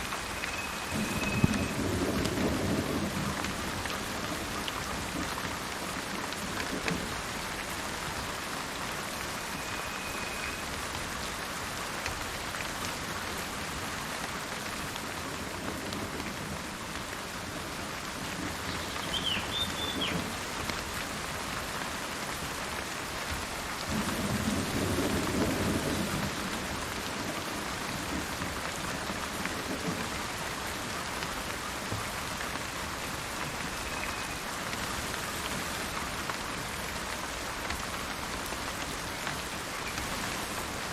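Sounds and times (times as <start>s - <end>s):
steady rain: 0.0s - 40.9s
thunder rolling: 0.9s - 3.6s
bird chirping: 18.7s - 20.2s.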